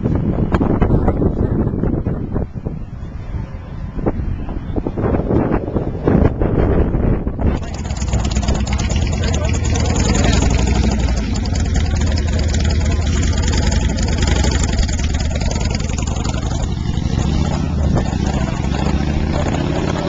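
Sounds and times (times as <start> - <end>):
car exhaust rumble pulling away: 7.5 - 20.0.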